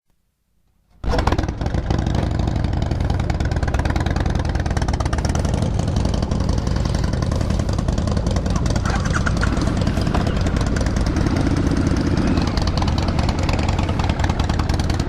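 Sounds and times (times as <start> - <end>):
motorcycle engine running: 1.0 - 15.0.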